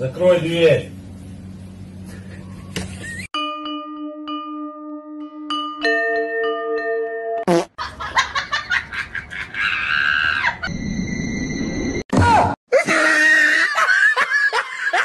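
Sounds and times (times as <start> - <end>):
rapid snickering laugh: 7.8 - 10.0, 12.8 - 15.0.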